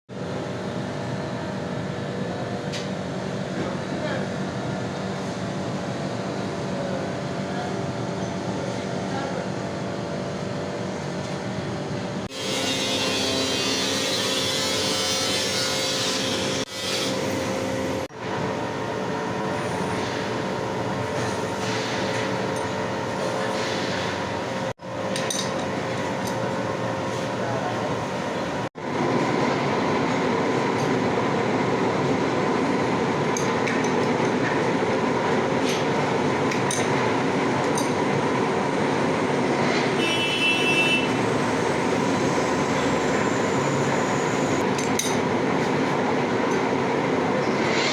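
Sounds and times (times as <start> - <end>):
machine tool cutting metal: 12.3 - 17.8.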